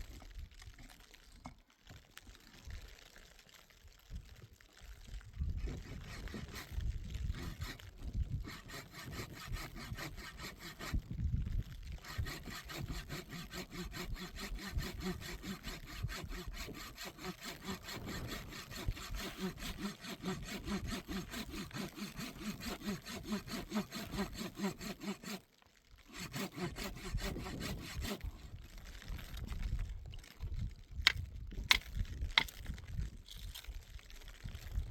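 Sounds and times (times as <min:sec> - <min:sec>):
saw cutting through wood: 0:05.4 - 0:29.1.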